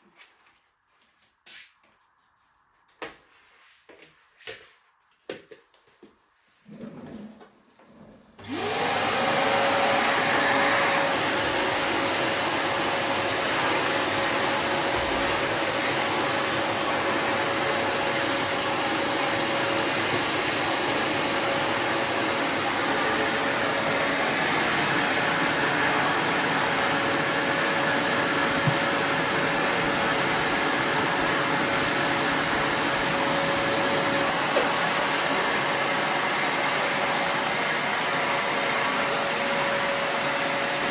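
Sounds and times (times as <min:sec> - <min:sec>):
wet-and-dry vacuum running: 0:08.4 - 0:40.9.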